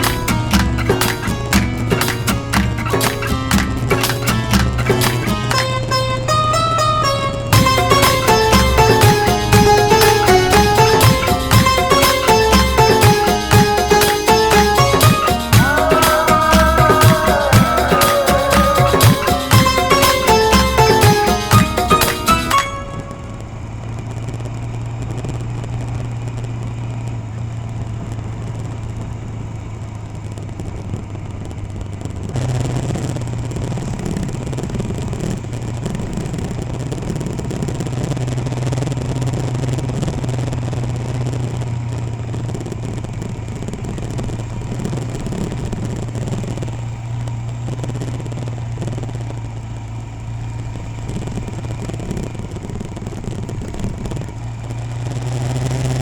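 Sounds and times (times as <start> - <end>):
loud rough noise: 0.0 - 25.6, 31.7 - 46.8
motorcycle engine running: 0.0 - 56.0.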